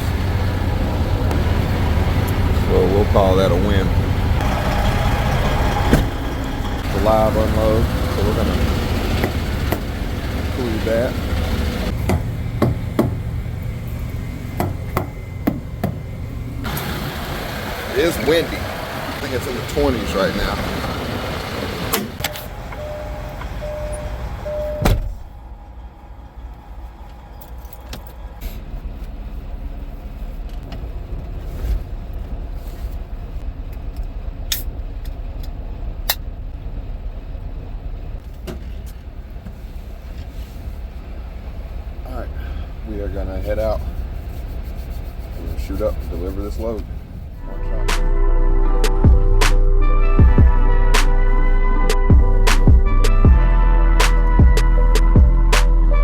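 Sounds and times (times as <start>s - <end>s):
truck engine idling: 0.0s - 56.0s
sharp knocks and thumps: 5.8s - 6.2s, 11.9s - 13.2s, 14.6s - 16.0s.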